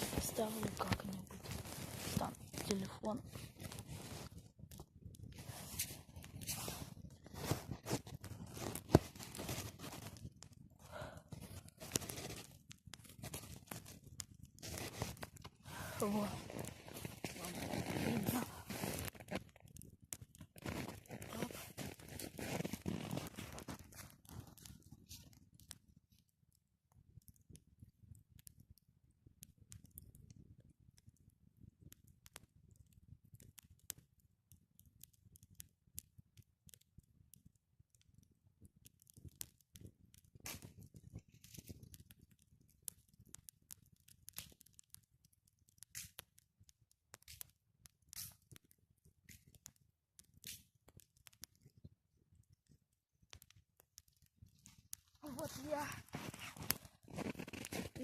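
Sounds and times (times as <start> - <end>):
rustling: 0.0 - 4.4, 5.4 - 10.2
burning wood popping: 0.0 - 58.0
campfire crackling: 0.0 - 58.0.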